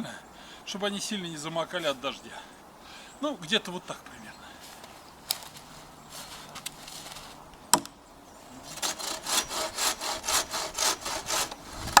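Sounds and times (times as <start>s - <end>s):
hand saw cutting wood: 8.6s - 12.0s.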